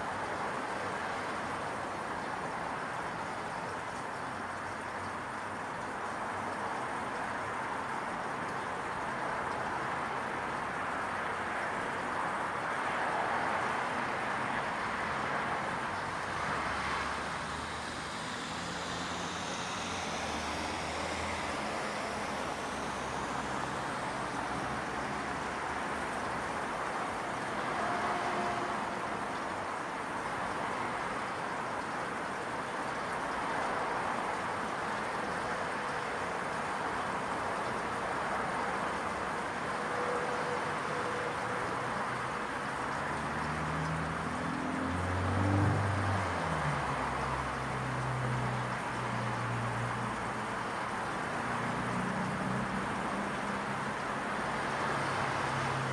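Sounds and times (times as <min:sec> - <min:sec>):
distant traffic hum: 0:00.0 - 0:55.9
vehicle passing: 0:13.2 - 0:27.5, 0:42.9 - 0:50.4, 0:51.2 - 0:55.9.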